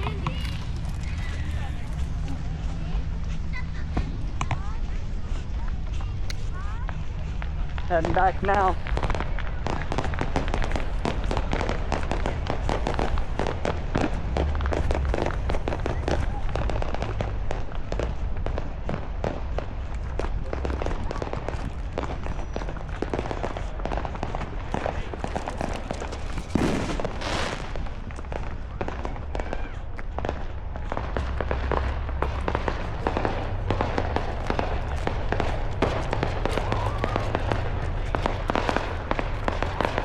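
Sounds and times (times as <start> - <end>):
fireworks crackling and popping: 0.0 - 40.0.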